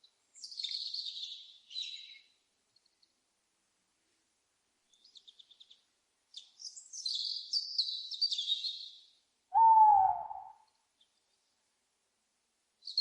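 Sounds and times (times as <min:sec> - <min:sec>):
small birds chirping: 0:00.0 - 0:03.2, 0:04.8 - 0:11.6, 0:12.8 - 0:13.0
owl hoot: 0:09.5 - 0:10.7.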